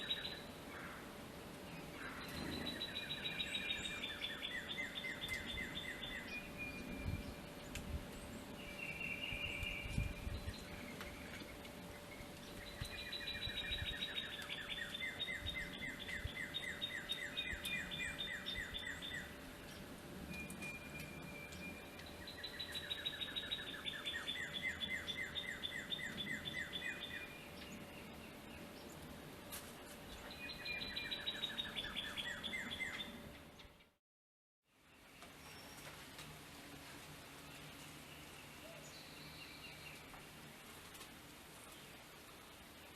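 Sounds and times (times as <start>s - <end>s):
faint steady hum: 0.0s - 33.9s.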